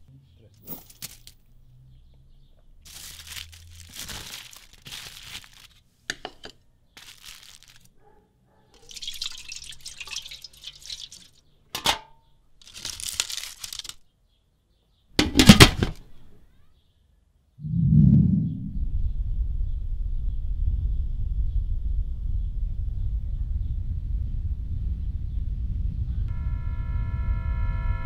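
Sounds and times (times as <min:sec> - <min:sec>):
aluminium foil crinkling: 0:00.7 - 0:01.4, 0:02.8 - 0:08.0, 0:08.8 - 0:11.9, 0:12.6 - 0:14.0.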